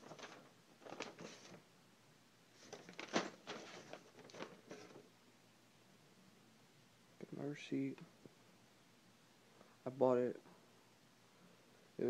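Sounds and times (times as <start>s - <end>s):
packing paper rustling and crinkling: 0.0s - 1.6s, 2.6s - 5.1s.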